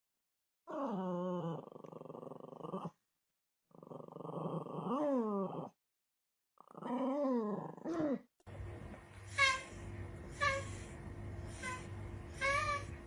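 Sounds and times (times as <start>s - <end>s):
dog grumbling and whining: 0.7s - 3.0s, 3.7s - 5.8s, 6.6s - 8.3s, 11.5s - 13.0s.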